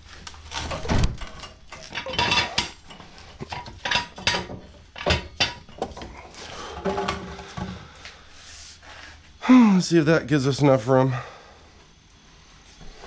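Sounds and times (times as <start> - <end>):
metal clanking and clattering: 0.5 - 7.4.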